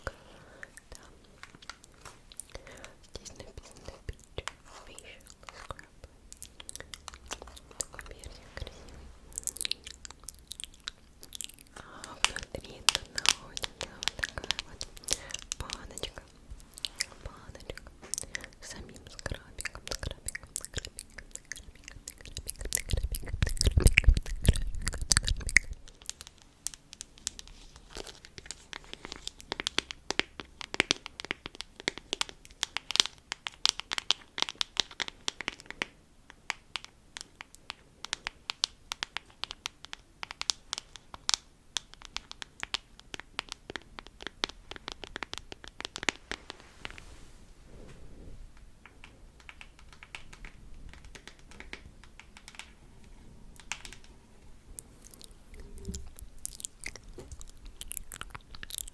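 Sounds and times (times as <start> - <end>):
dense crinkling and crackling clicks: 0.0 - 58.9.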